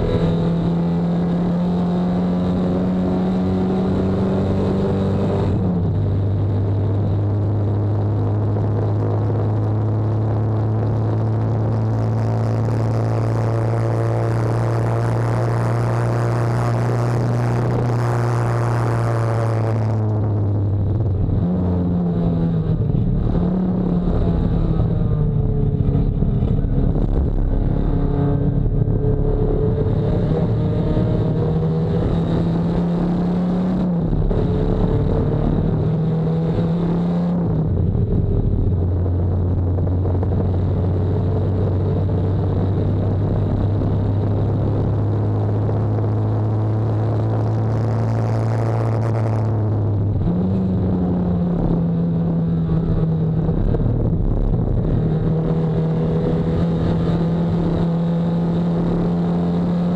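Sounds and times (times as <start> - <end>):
race car engine at speed: 0.0 - 59.9.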